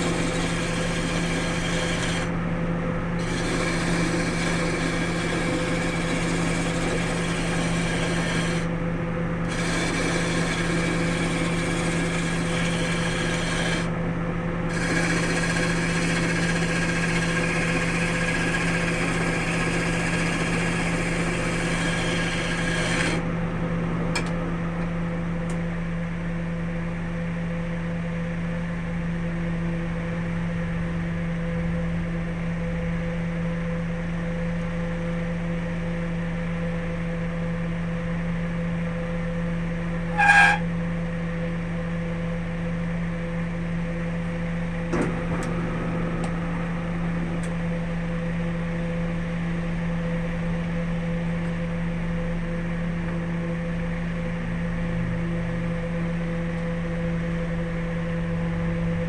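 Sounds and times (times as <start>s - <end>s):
hand tool cutting spinning wood: 0.0s - 2.3s, 3.2s - 8.7s, 9.5s - 13.9s, 14.7s - 23.2s
wood lathe motor humming: 0.0s - 2.4s, 3.2s - 8.8s, 9.4s - 14.0s, 14.6s - 23.3s.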